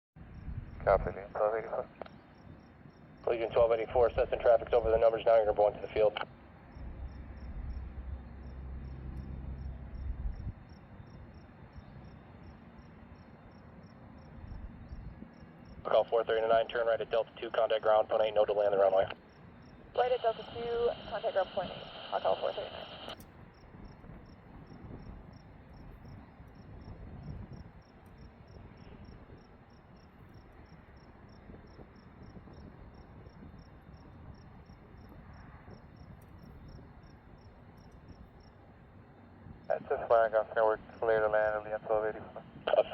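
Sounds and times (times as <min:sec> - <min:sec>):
cricket chirping: 0:00.2 - 0:42.9
faint low rumble: 0:03.2 - 0:12.6, 0:13.2 - 0:42.9
low rumble: 0:06.8 - 0:10.8.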